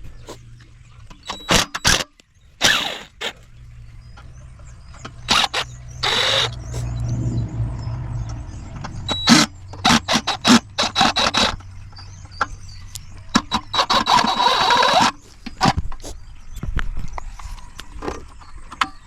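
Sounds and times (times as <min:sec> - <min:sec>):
low steady rumble: 0:02.4 - 0:13.4.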